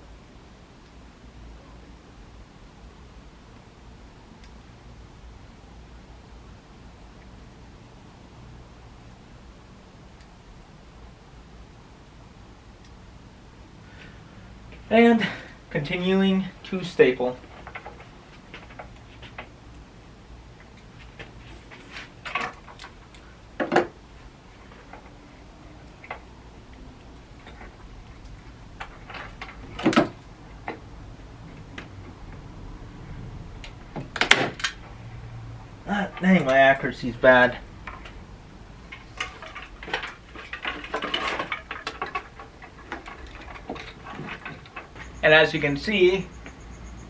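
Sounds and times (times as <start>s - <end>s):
rattling and rustling of lights: 13.8s - 47.0s.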